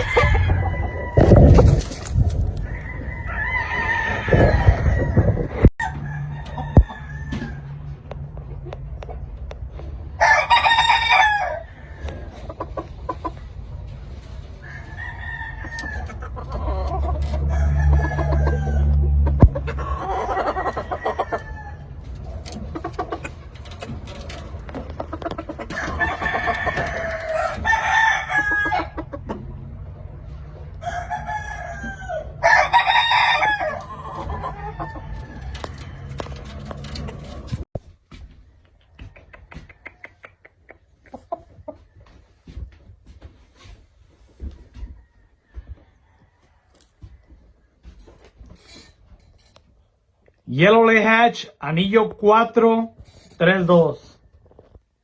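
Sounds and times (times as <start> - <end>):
rooster clucks and calls: 0.0 - 2.0, 2.6 - 9.4, 14.6 - 23.5, 24.6 - 36.8, 38.6 - 42.4
roosters crowing: 0.0 - 8.6, 9.9 - 37.7, 44.6 - 47.6.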